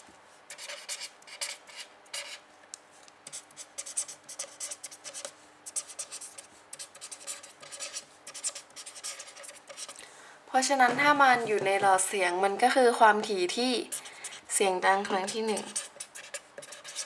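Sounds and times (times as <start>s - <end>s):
scratchy pen strokes: 3.3s - 10.0s, 13.9s - 17.0s.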